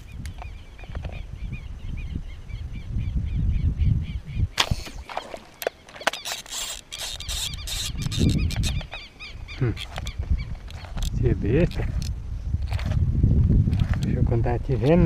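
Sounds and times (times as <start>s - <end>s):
wind rumble on microphone: 0.0s - 5.1s, 7.2s - 15.0s
fishing line clicking and rattling: 4.6s - 9.0s, 9.8s - 13.0s.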